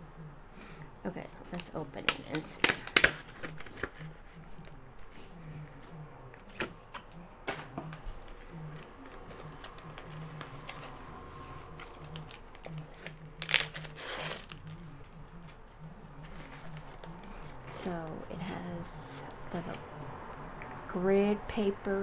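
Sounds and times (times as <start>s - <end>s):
paper and plastic rustling: 1.5s - 4.4s, 6.4s - 17.5s.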